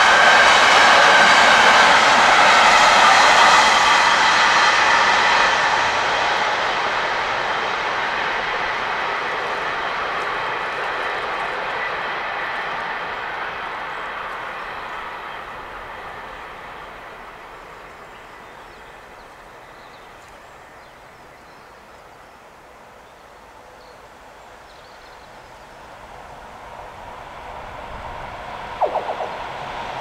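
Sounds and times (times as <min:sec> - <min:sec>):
electric locomotive approaching: 0:00.0 - 0:18.1
faint bird chirps: 0:28.8 - 0:29.5.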